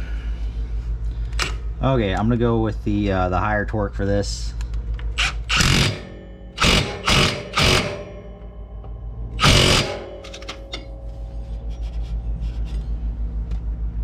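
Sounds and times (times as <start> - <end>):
low rhythmic hum: 0.0 - 14.0
impact wrench hammering: 5.2 - 10.9.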